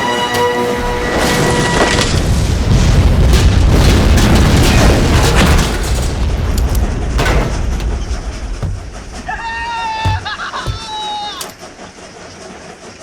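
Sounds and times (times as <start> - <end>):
sharp bangs of gunfire: 3.3 - 11.9.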